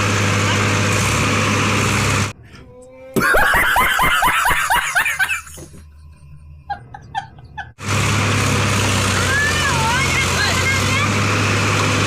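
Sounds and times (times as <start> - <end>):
engine noise: 0.0 - 2.4, 5.4 - 12.0
rapid laughter: 3.2 - 7.8.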